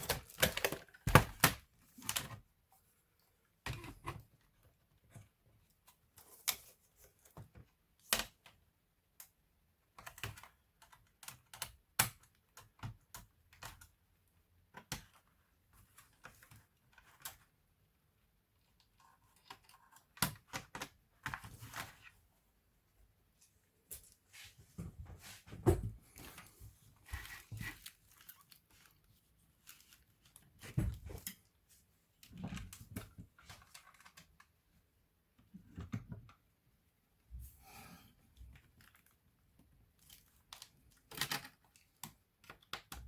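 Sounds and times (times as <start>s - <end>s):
laptop being taken apart: 0.0s - 2.4s.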